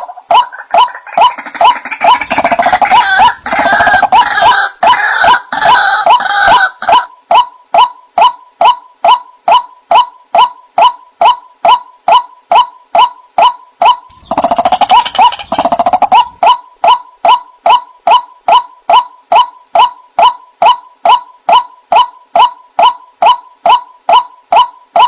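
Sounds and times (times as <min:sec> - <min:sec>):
waterhen calling: 0:00.0 - 0:07.1, 0:13.8 - 0:17.8
bird bubbling chatter: 0:00.4 - 0:04.6, 0:14.1 - 0:17.0.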